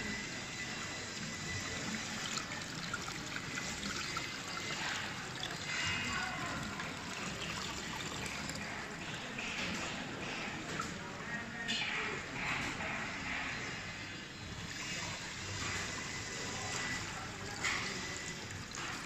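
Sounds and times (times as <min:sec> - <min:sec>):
water pouring and trickling: 0:00.5 - 0:11.1, 0:14.4 - 0:19.0.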